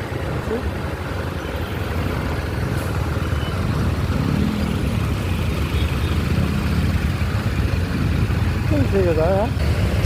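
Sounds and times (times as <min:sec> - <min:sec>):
wind and road noise: 0:00.0 - 0:10.0
motorcycle engine: 0:03.6 - 0:10.0.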